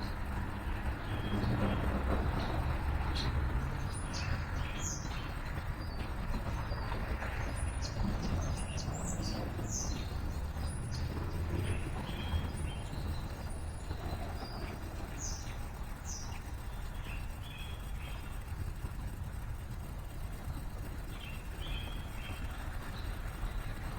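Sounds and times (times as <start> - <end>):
traffic rumble: 0.0 - 23.9
small birds chirping: 0.3 - 23.9.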